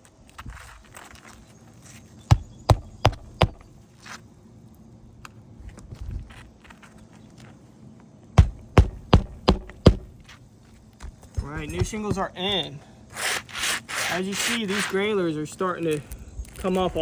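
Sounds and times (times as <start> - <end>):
hammer striking roofing nails: 2.3 - 3.7, 8.4 - 10.4, 11.0 - 12.3.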